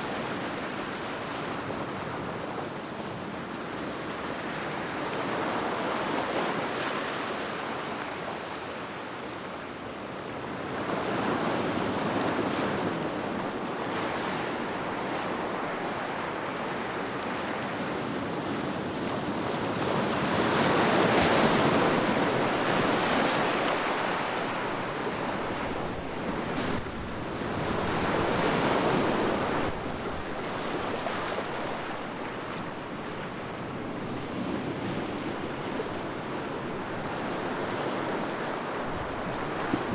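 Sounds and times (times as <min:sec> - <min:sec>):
sea waves breaking on shore: 0:18.6 - 0:39.9.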